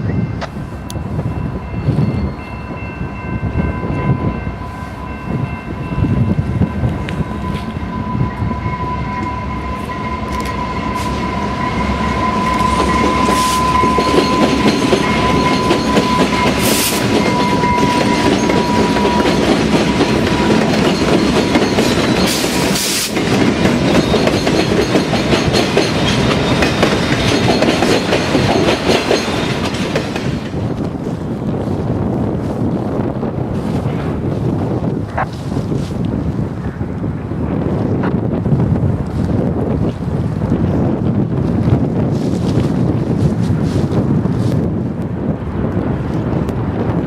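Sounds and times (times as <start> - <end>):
steady high-pitched tone: 0.0 - 23.1
freight train cars clattering: 6.9 - 31.4.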